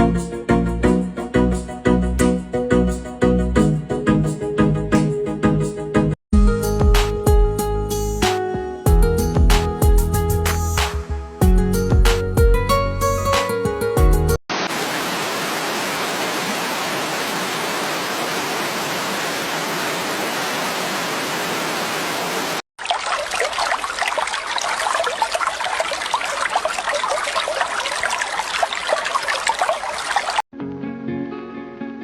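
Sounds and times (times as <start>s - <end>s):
steady rush of water: 14.5s - 30.4s
stream splashing and gurgling: 14.5s - 30.5s.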